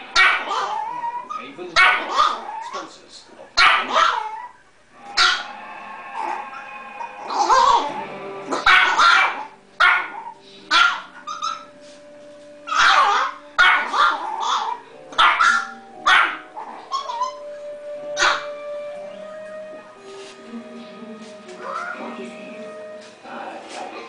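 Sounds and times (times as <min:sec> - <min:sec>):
television music: 0:00.0 - 0:24.0
small dog yapping: 0:00.1 - 0:02.8, 0:03.6 - 0:04.6, 0:08.5 - 0:11.7, 0:12.7 - 0:17.4, 0:18.2 - 0:18.5.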